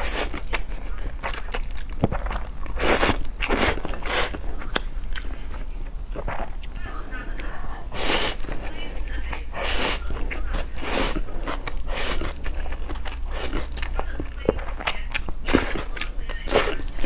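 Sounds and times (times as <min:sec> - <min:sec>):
chewing with wet clicks: 0:00.0 - 0:07.8, 0:08.4 - 0:17.0
person slurping noodles: 0:02.8 - 0:04.4, 0:07.9 - 0:08.5, 0:09.6 - 0:12.5.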